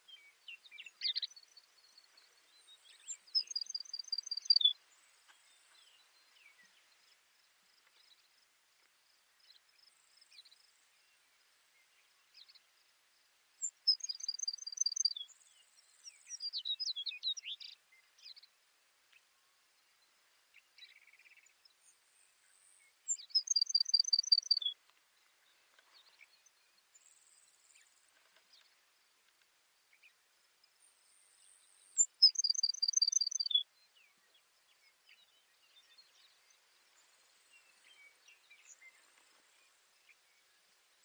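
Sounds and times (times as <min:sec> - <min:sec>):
sparrow singing: 0:00.0 - 0:04.8, 0:13.6 - 0:15.4, 0:16.0 - 0:18.5, 0:23.1 - 0:24.8, 0:31.9 - 0:39.3.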